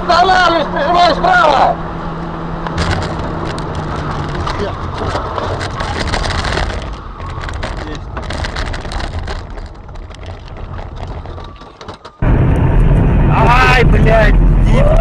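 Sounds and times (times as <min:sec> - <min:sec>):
low engine drone: 0:00.0 - 0:11.6, 0:12.2 - 0:15.0
car road noise: 0:00.0 - 0:15.0
sharp clicks and crunches: 0:02.6 - 0:12.2.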